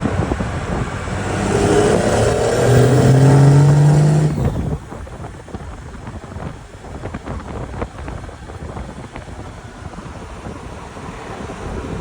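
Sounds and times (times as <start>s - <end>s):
turbodiesel engine revving: 0.0s - 5.5s.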